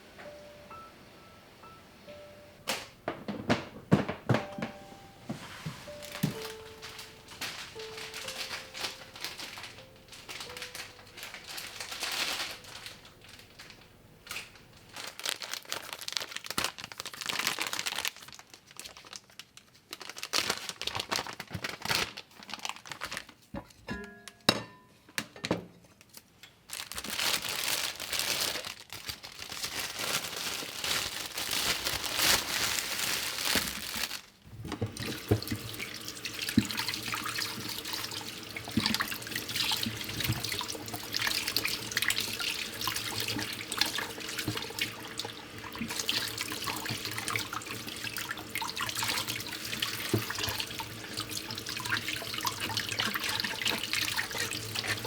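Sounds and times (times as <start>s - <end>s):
tap water running into sink: 6.1s - 9.5s, 34.5s - 55.0s
water dripping: 34.7s - 55.0s.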